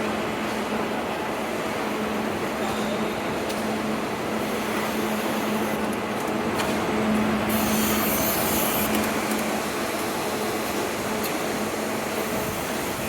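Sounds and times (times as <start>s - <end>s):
production line machinery hum: 0.0s - 13.0s.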